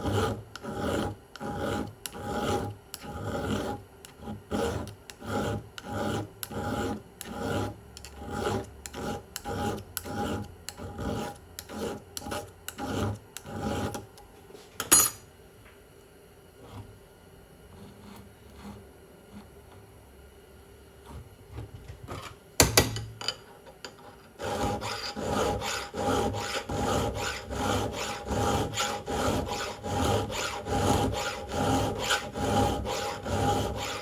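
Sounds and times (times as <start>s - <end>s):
file rasping on chainsaw chain: 0.0s - 14.0s, 24.4s - 34.0s.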